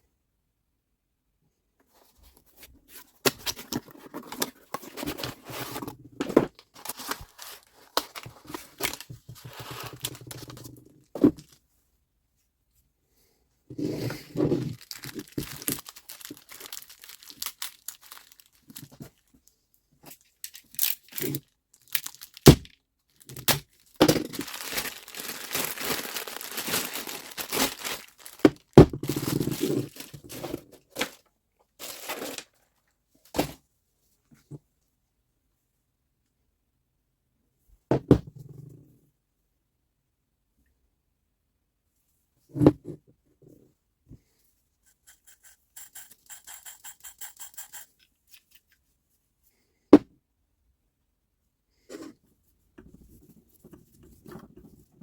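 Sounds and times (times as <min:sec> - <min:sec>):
hands scraping and rustling parts: 0:44.8 - 0:49.0.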